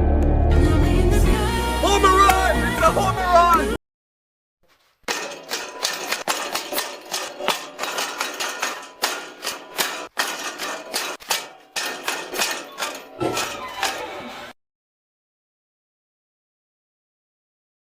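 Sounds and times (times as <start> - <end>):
sharp clicks and knocks: 5.0 - 14.2.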